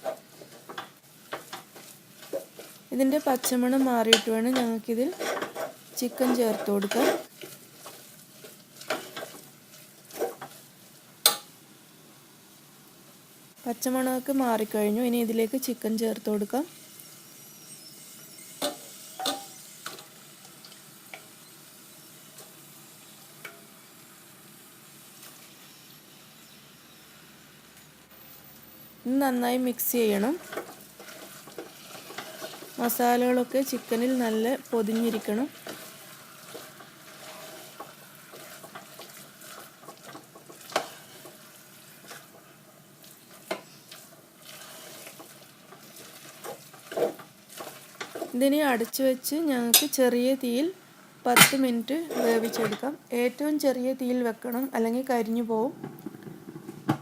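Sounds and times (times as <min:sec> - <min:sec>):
faint sizzle in a pan: 0:00.0 - 0:57.0.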